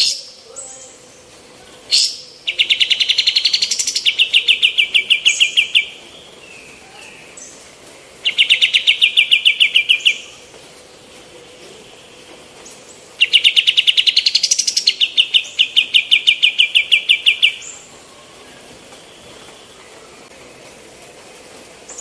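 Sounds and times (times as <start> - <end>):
bird singing rattling trills: 1.9 - 10.4, 12.0 - 20.3.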